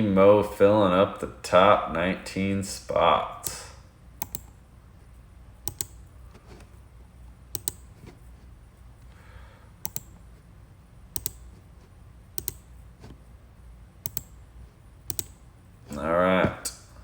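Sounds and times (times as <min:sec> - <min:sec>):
faint low hum: 0:00.0 - 0:17.0
computer mouse clicks: 0:04.2 - 0:04.6, 0:05.6 - 0:06.7, 0:07.5 - 0:08.0, 0:09.8 - 0:10.3, 0:11.1 - 0:11.6, 0:12.4 - 0:13.2, 0:14.0 - 0:14.4, 0:15.1 - 0:15.4.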